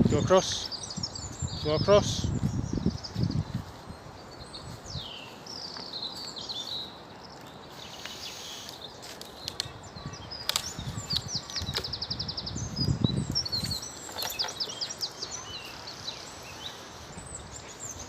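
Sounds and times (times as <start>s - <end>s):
songbirds singing: 0.0s - 18.0s.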